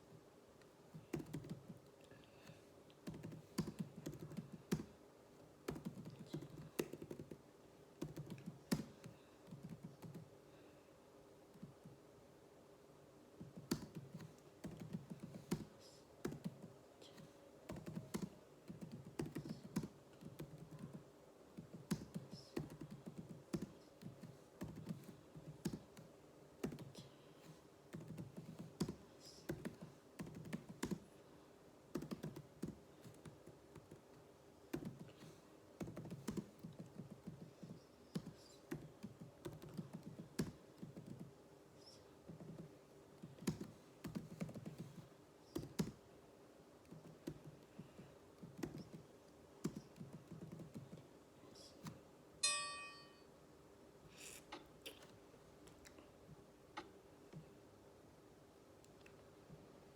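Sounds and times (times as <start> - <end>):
faint steady hum: 0.0 - 59.9
keyboard typing: 0.9 - 1.8, 3.0 - 5.0, 5.7 - 7.4, 8.0 - 10.3, 13.4 - 16.7, 17.7 - 21.0, 21.6 - 27.1, 27.9 - 31.0, 31.9 - 34.1, 34.7 - 41.3, 42.3 - 46.0, 48.4 - 51.0.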